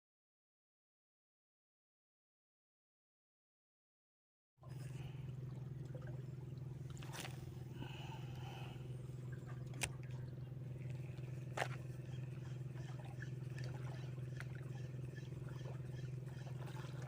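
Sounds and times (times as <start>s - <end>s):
low mechanical hum: 4.6s - 17.0s.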